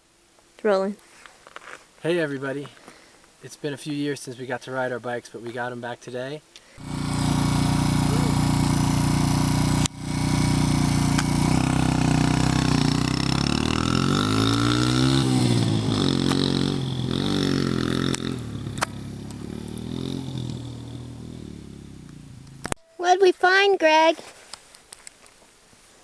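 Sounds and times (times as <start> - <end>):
dirt bike engine revving: 6.8 - 22.8.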